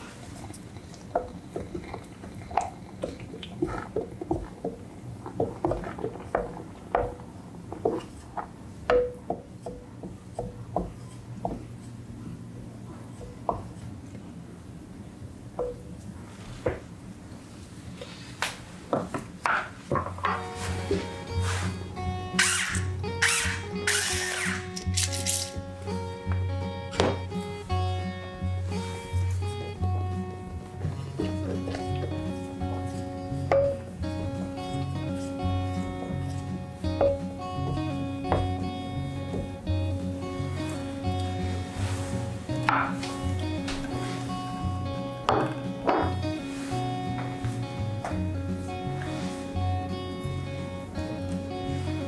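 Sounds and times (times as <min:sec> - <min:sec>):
background music: 0:20.1 - 0:52.0
pepper mill grinding: 0:22.3 - 0:25.6.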